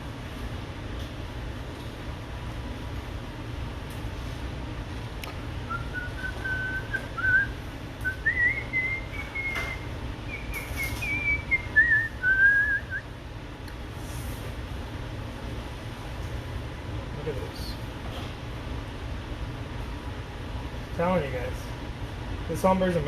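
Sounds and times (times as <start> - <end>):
steady low hum: 0.0 - 23.0
person whistling a tune: 5.7 - 13.0.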